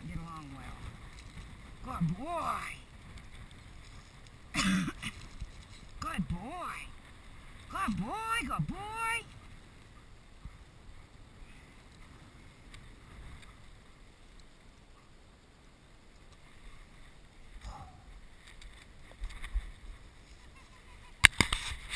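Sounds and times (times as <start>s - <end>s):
wind buffeting microphone: 0.0s - 14.0s
faint rustles or knocks: 2.9s - 6.0s, 16.2s - 21.9s.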